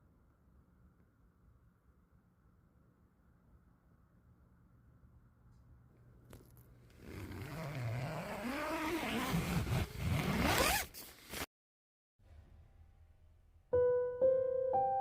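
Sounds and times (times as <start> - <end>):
zipper being pulled: 6.3 - 11.5.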